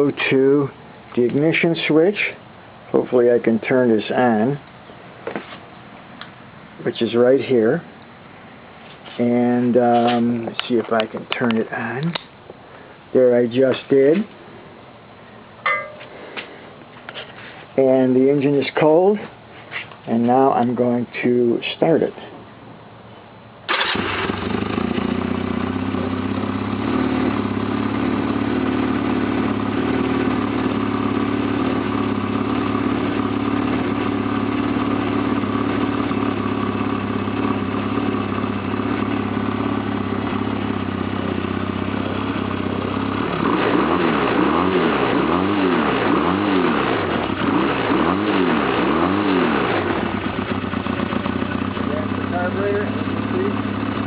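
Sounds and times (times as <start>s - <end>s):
motorcycle engine idling: 23.8s - 43.6s, 47.0s - 54.0s.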